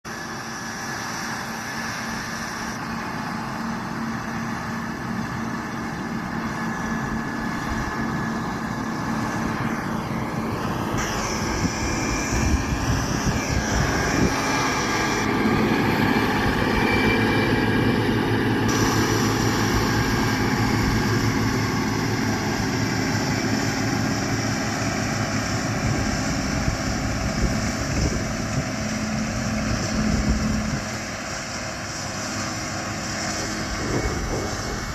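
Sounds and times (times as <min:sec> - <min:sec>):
round baler machinery drone: 0:00.0 - 0:34.9
tractor engine running under load: 0:00.1 - 0:34.9.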